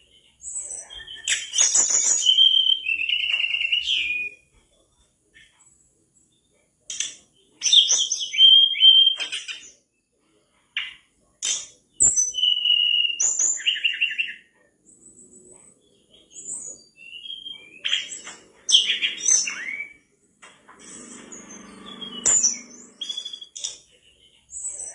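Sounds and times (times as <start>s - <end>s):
bird whistling and trilling: 0.5s - 4.4s, 7.6s - 9.7s, 12.0s - 14.4s, 16.3s - 20.1s, 20.8s - 23.8s.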